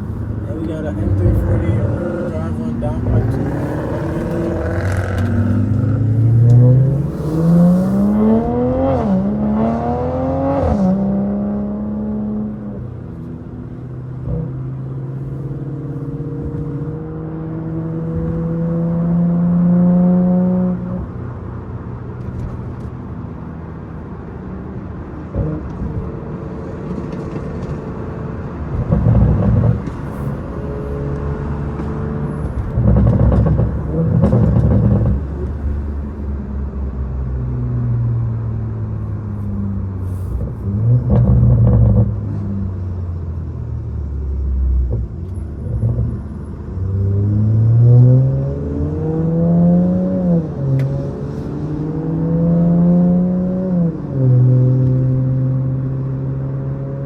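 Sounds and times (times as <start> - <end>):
car engine revving hard: 0.5 - 12.6.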